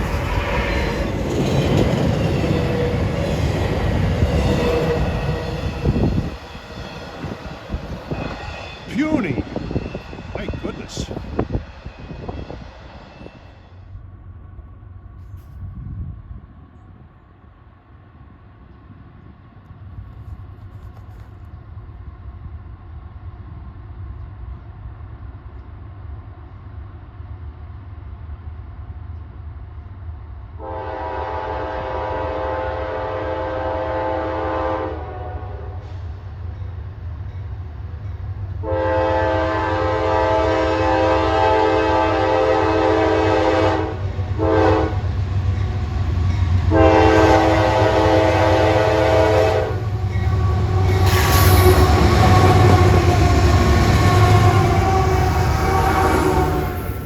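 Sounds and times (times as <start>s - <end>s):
freight train rumble: 0.0s - 57.0s
locomotive air horn blasts: 30.6s - 35.9s, 38.6s - 45.0s, 46.7s - 56.8s.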